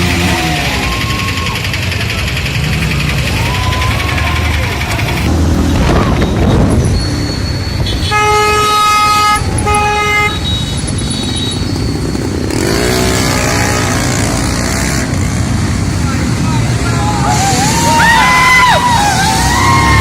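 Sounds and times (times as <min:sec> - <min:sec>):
road and wind noise: 0:00.0 - 0:20.0
vehicle horn honking: 0:07.8 - 0:11.7, 0:12.7 - 0:14.3.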